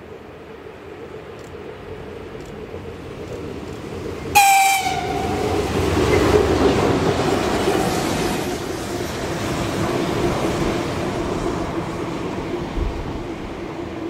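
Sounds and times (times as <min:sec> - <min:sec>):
train rumbling past: 0:00.0 - 0:14.0
high-pitched train horn blast: 0:04.3 - 0:06.0.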